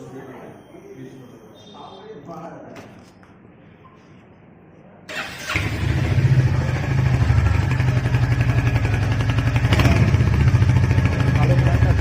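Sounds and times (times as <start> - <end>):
motorcycle engine starting and idling: 5.1 - 12.0.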